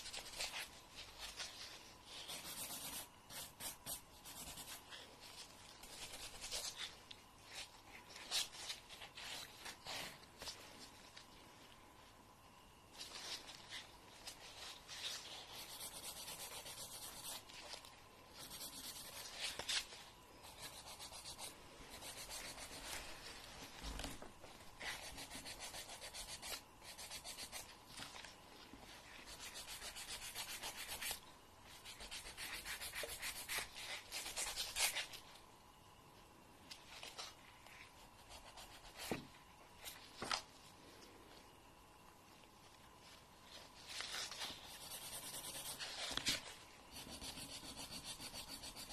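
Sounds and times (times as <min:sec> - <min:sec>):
nail file scratching a fingernail: 0:02.3 - 0:04.8, 0:15.5 - 0:17.4, 0:18.4 - 0:19.4, 0:20.4 - 0:23.0, 0:24.9 - 0:27.7, 0:29.3 - 0:35.1, 0:44.6 - 0:46.2, 0:46.9 - 0:48.9.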